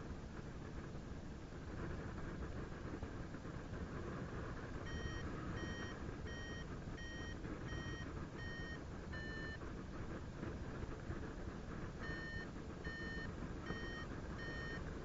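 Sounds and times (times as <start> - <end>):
variometer beeping: 4.8 - 9.6, 12.0 - 14.9.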